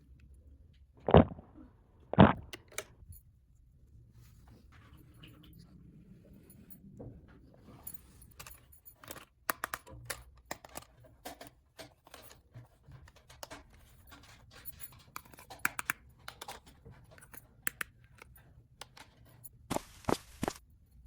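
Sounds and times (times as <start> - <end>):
plastic toy pieces clicking: 8.4 - 12.4, 13.1 - 19.2.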